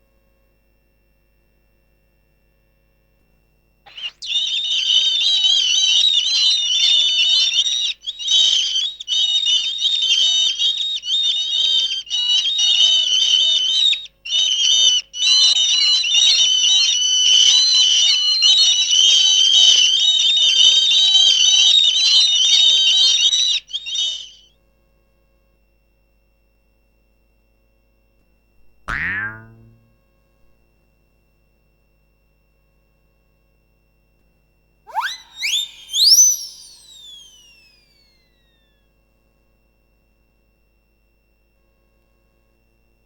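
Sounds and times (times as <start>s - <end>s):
high-pitched warbling whistles: 28.9s - 29.8s, 34.9s - 38.3s.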